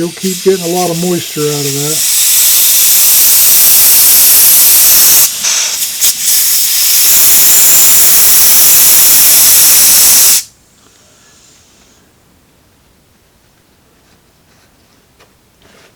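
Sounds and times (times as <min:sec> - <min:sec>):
compressed air blow gun hissing: 0:00.0 - 0:10.5.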